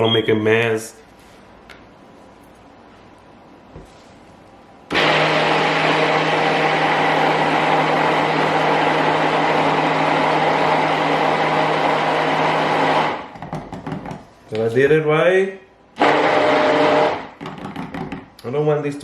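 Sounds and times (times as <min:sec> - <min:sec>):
electric stick blender running: 0:04.9 - 0:13.3, 0:16.0 - 0:17.3.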